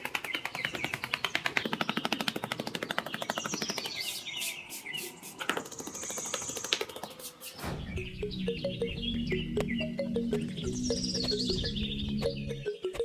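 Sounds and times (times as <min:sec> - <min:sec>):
rapid even clicking: 0:00.0 - 0:07.6
birds chirping: 0:00.0 - 0:13.0
music: 0:07.8 - 0:13.0.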